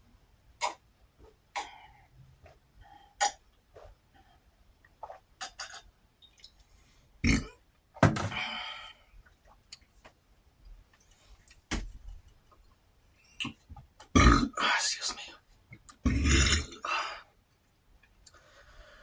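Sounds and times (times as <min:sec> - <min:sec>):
eating clicks and smacks: 0:05.0 - 0:06.7, 0:15.7 - 0:16.0
man burping loudly: 0:07.2 - 0:07.6, 0:14.2 - 0:14.7, 0:16.0 - 0:17.2.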